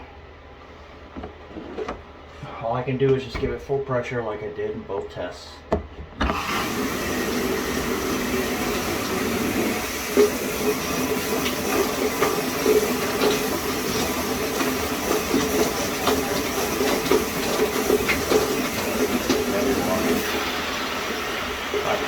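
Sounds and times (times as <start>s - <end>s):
shower spray hissing: 6.4s - 22.0s.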